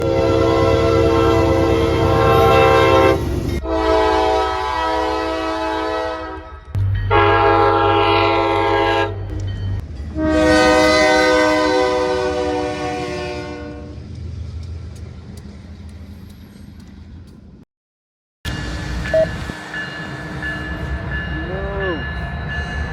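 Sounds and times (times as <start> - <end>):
locomotive air horn blasts: 0.0 - 9.2, 10.2 - 14.0
passing train rumble: 0.0 - 17.6, 18.5 - 22.9.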